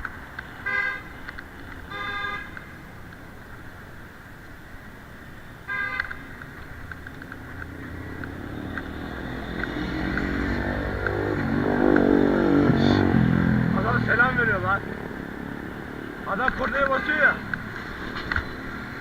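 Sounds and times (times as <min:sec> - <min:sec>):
car horn toot: 0:01.9 - 0:02.5, 0:05.7 - 0:06.1
vehicle engine passing: 0:07.6 - 0:16.3.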